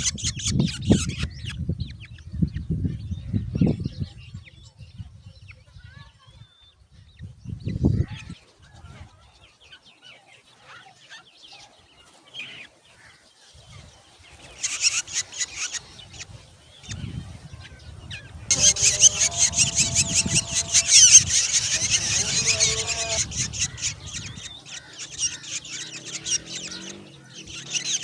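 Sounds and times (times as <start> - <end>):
nestlings begging calls: 0.0 - 2.7, 13.6 - 28.0.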